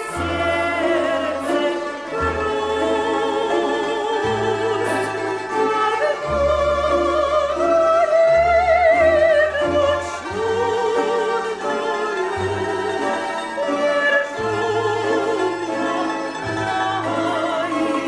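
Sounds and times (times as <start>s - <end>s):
operatic voice singing: 0.0s - 18.0s
orchestral accompaniment: 0.0s - 18.0s.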